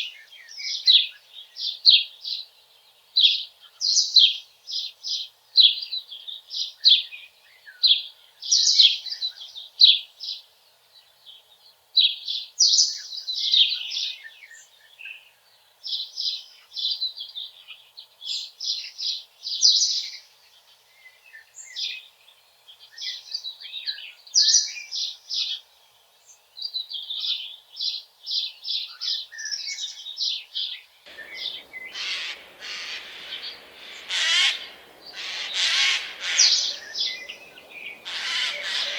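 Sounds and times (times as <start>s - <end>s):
small songbirds twittering: 0.0s - 38.9s
harsh rasping bird screeches: 31.2s - 37.4s, 38.0s - 38.9s.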